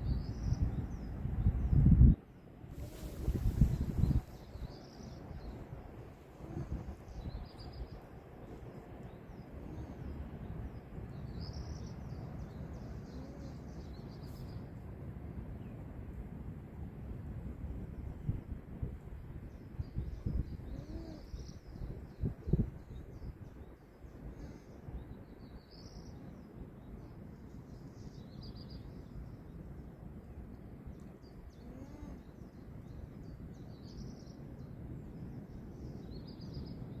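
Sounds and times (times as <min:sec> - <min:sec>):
wind rumble: 0:00.0 - 0:13.0
small birds chirping: 0:02.7 - 0:14.8, 0:19.6 - 0:29.9, 0:30.9 - 0:36.9.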